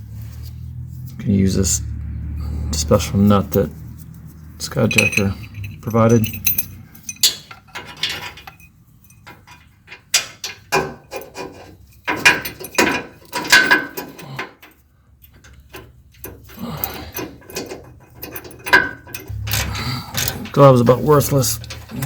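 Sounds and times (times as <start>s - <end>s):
metallic knocks: 3.6s - 14.2s, 17.2s - 22.0s
ratchet wrench clicking: 17.1s - 20.6s.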